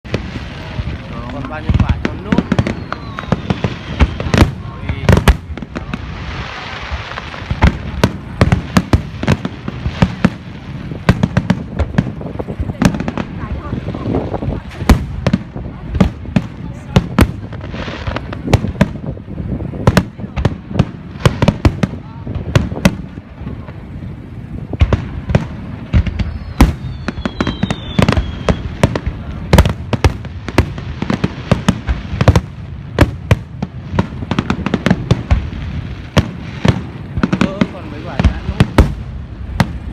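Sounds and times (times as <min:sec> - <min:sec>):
fireworks bangs and cracks: 0:00.0 - 0:39.9.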